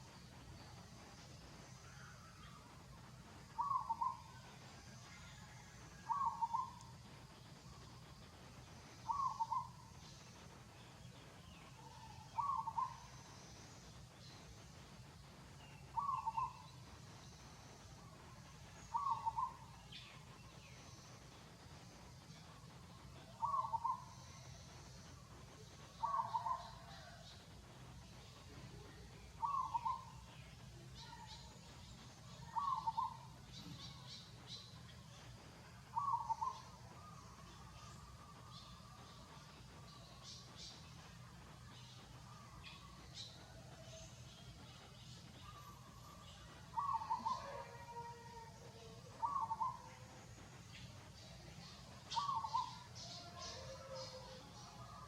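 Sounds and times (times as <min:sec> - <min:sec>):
faint high chirps: 0:00.0 - 0:55.0
bird calling: 0:03.6 - 0:04.3, 0:09.0 - 0:09.8, 0:11.8 - 0:13.1, 0:16.0 - 0:16.8, 0:18.8 - 0:20.1, 0:23.4 - 0:24.5, 0:26.0 - 0:27.2, 0:29.4 - 0:30.2, 0:32.4 - 0:34.1, 0:35.9 - 0:38.0, 0:46.7 - 0:50.0, 0:51.6 - 0:54.4.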